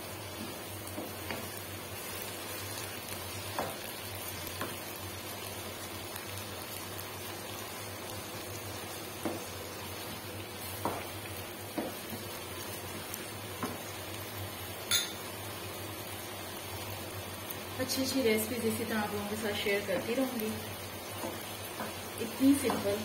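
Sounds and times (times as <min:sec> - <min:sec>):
vegetables sizzling in a wok: 0:00.0 - 0:23.0
wooden spatula knocking on pan: 0:09.2 - 0:09.5, 0:10.8 - 0:11.1, 0:11.7 - 0:12.3.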